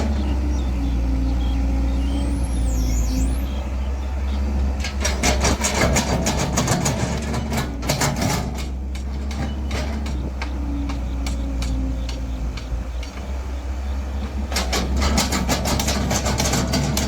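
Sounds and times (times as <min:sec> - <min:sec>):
excavator diesel engine running: 0:00.0 - 0:17.0
rattling clatter of knocks: 0:04.6 - 0:13.4, 0:14.2 - 0:17.0.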